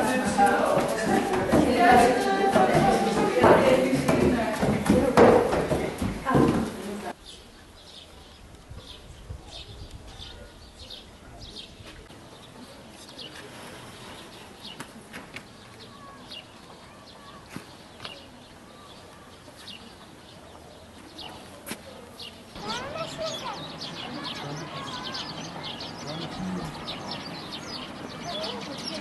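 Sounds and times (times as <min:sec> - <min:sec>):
small birds chirping: 0:07.1 - 0:29.0.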